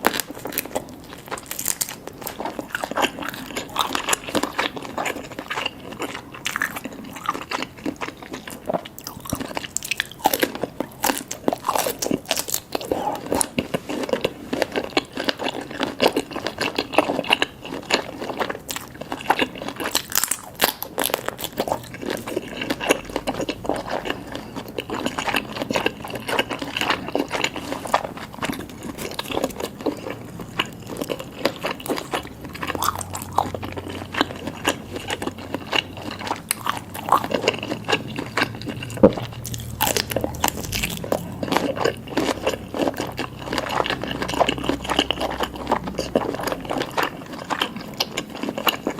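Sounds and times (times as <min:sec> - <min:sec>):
person chewing food: 0:00.0 - 0:48.9.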